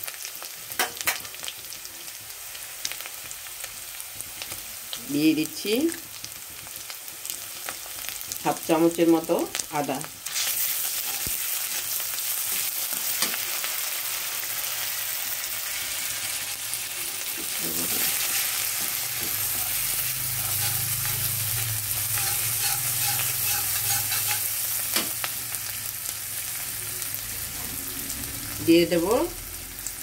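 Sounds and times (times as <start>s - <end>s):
onion frying in hot oil: 0.0s - 30.0s
metal spatula scraping pan: 10.3s - 13.6s, 15.8s - 25.2s.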